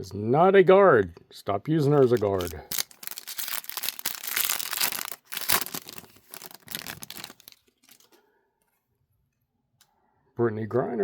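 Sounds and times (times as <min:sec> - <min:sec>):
wrapper tearing and crinkling: 0:02.0 - 0:08.2.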